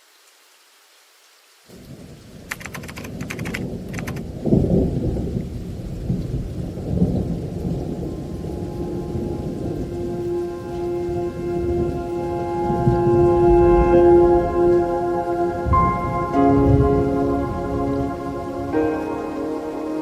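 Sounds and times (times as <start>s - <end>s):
faint hiss: 0.0s - 4.2s
heavy rain: 0.0s - 20.0s
thunder crackle and rumble: 1.7s - 20.0s.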